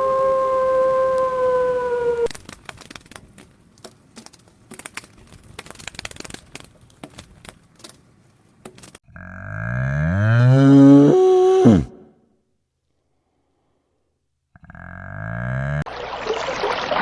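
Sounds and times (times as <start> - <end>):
faint crackling and clicking: 2.3 - 9.0
cow mooing: 9.1 - 12.0, 14.6 - 15.8.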